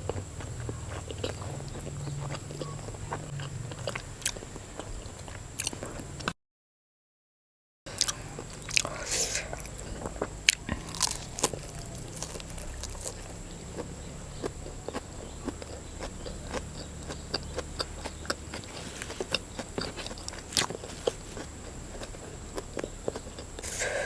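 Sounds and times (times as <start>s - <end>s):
wet chewing mouth clicks: 0.0s - 6.3s, 7.9s - 24.0s
low steady hum: 7.9s - 24.0s.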